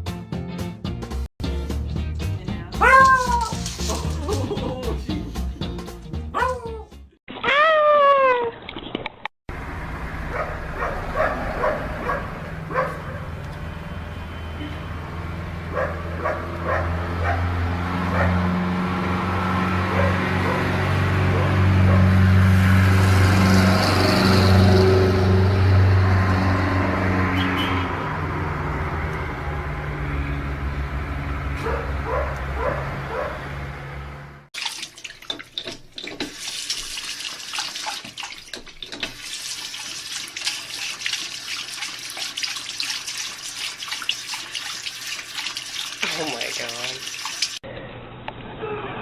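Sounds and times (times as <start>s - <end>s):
tap running into a sink: 35.2s - 37.0s, 37.6s - 39.3s.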